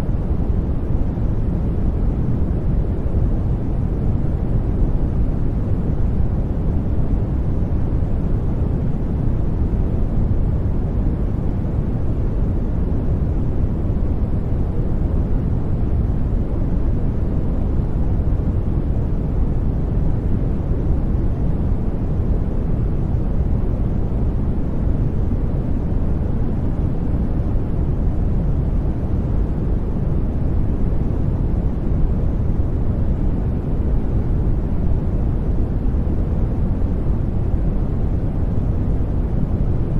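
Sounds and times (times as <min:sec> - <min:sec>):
deep rumbling white noise: 0:00.0 - 0:39.9.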